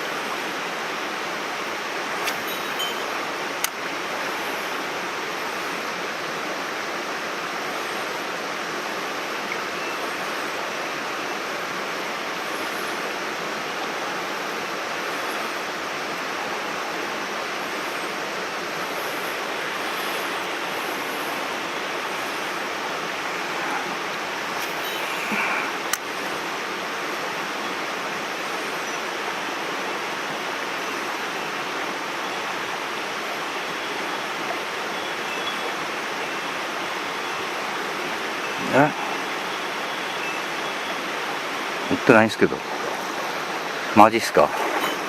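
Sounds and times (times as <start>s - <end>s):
stream rushing over rocks: 0.0s - 45.0s.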